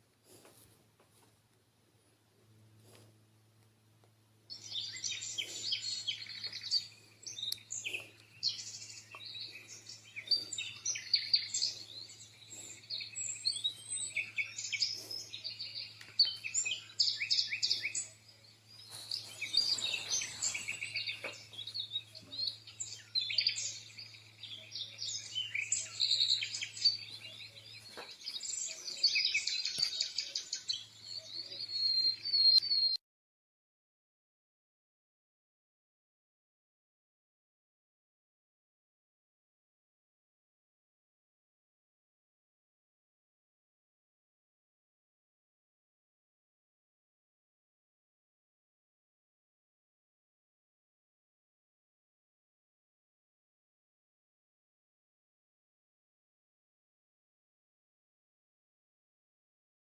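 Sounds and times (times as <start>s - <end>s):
steady low hum: 0.0s - 28.9s
recorded birdsong: 2.4s - 33.0s.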